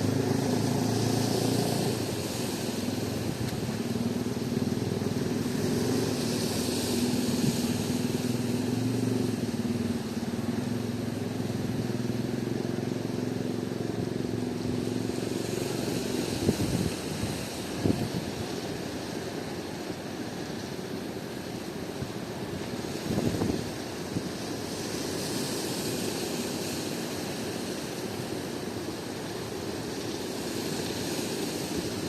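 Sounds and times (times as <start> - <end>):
steady hiss: 0.0 - 20.6
engine running steadily: 0.0 - 32.0.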